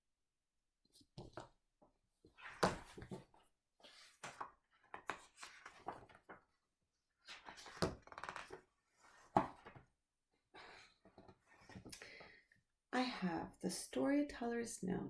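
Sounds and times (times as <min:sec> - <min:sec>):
book pages turning: 0:02.4 - 0:06.6, 0:07.2 - 0:09.8.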